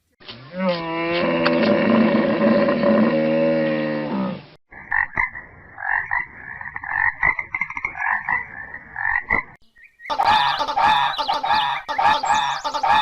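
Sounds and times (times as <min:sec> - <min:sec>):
animal rasping calls: 0:10.1 - 0:13.0.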